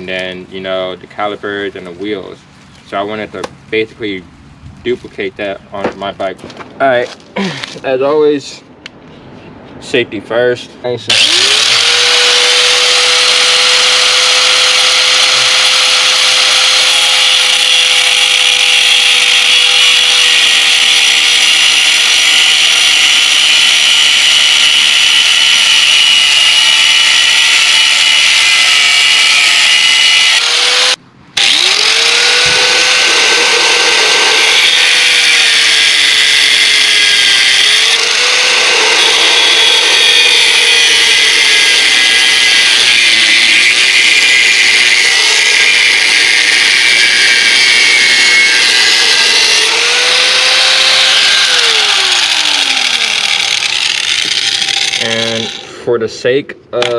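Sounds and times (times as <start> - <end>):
power cutting tool whining: 11.1 - 55.8.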